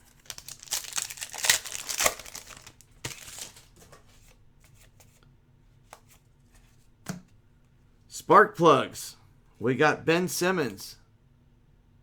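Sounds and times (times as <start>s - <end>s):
foil wrapper crinkling and tearing: 0.0s - 3.8s
card ticks and rustles: 0.0s - 5.0s.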